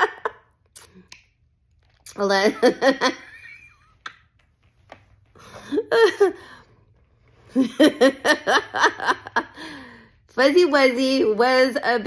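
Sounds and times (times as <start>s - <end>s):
woman laughing: 0.0s - 0.5s, 2.2s - 4.1s, 5.5s - 6.6s, 7.5s - 9.8s.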